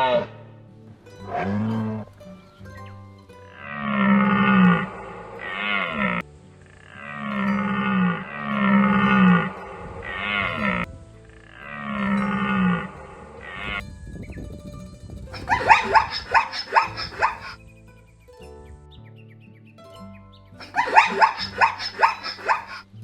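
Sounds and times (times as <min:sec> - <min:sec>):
animal calls: 0:00.0 - 0:00.4, 0:03.6 - 0:13.8, 0:15.4 - 0:17.6, 0:20.6 - 0:22.9.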